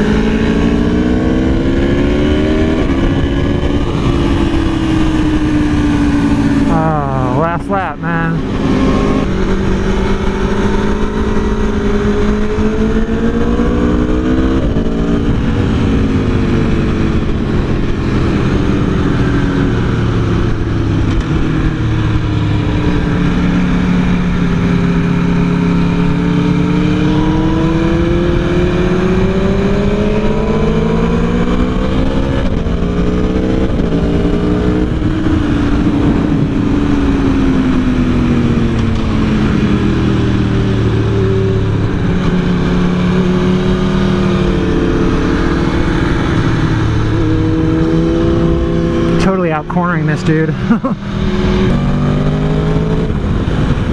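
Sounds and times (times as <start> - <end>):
motorcycle engine accelerating: 0.0 - 53.9
steady rushing noise: 32.5 - 53.9.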